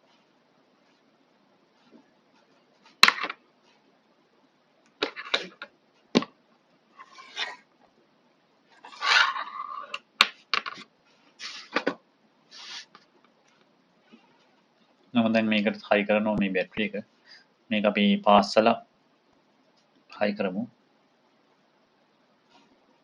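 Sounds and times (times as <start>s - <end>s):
scraping and rustling: 6.9s - 7.7s, 8.7s - 10.0s, 10.6s - 14.6s.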